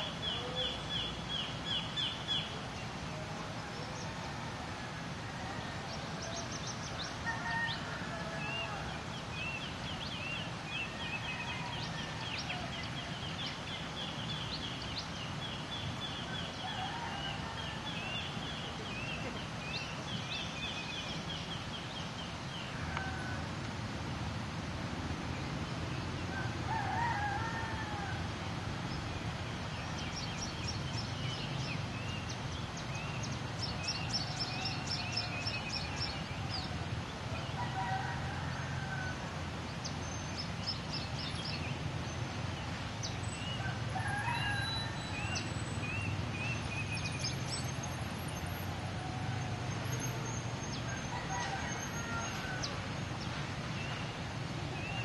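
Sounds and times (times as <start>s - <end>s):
rooster crowing: 7.2s - 9.0s, 11.0s - 12.9s, 16.6s - 18.2s, 22.7s - 23.5s, 26.3s - 28.3s, 37.5s - 39.3s, 43.6s - 45.4s, 50.8s - 53.0s
small birds chirping: 39.6s - 48.7s.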